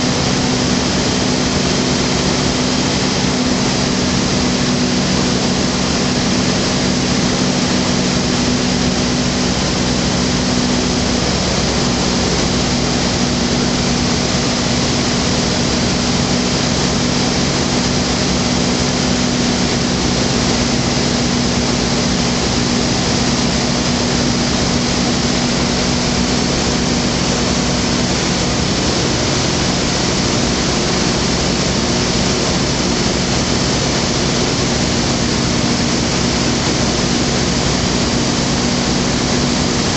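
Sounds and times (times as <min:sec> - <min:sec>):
aircraft engine and propeller: 0:00.0 - 0:39.9
rush of airflow: 0:00.0 - 0:39.9.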